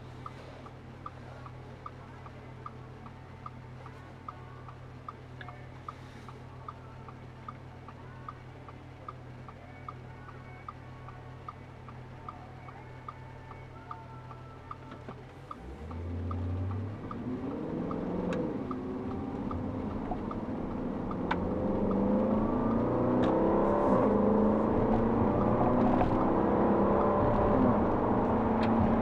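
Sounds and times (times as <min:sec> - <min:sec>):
regular light ticking: 0:00.2 - 0:29.0
car engine accelerating: 0:11.7 - 0:29.0.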